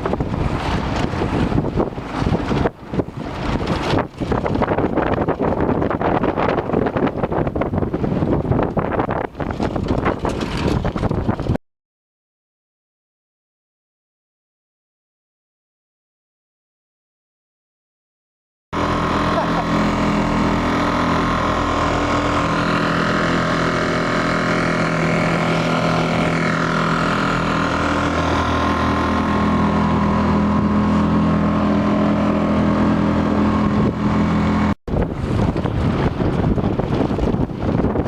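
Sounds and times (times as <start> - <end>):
wind buffeting microphone: 0.0 - 11.6, 18.8 - 38.0
engine droning: 18.8 - 37.3.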